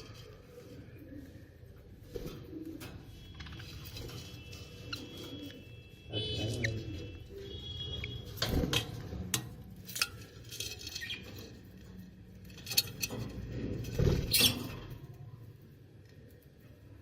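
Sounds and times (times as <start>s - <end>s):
light scratching and rustling: 0.0s - 5.6s.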